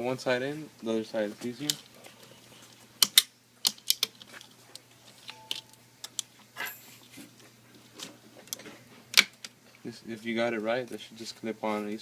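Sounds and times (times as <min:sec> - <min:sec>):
laptop plastic parts clicking: 0:03.0 - 0:04.4.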